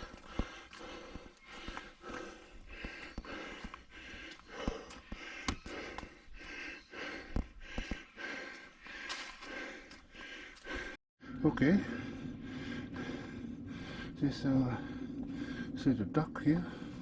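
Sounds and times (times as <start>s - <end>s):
footsteps on a trail: 0.0s - 11.0s
person breathing hard: 0.0s - 15.8s, 16.6s - 17.0s.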